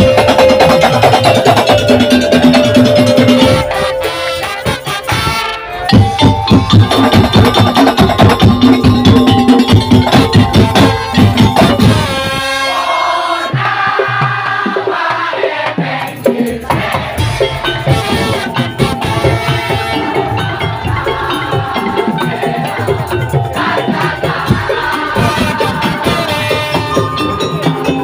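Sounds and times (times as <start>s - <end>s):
melody line: 0.0s - 5.0s, 5.6s - 12.2s, 17.2s - 28.0s
drums and wooden percussion: 0.0s - 28.0s.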